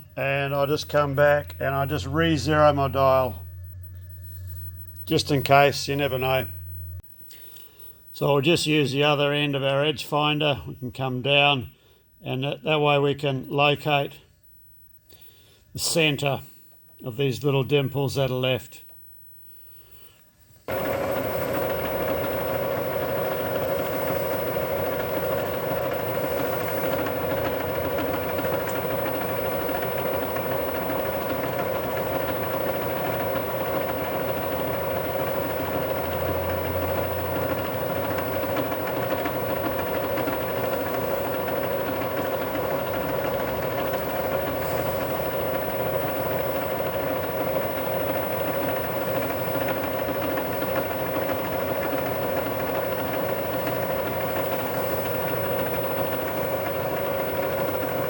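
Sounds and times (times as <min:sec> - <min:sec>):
milling machine whining: 0:00.0 - 0:07.0, 0:20.7 - 0:58.0.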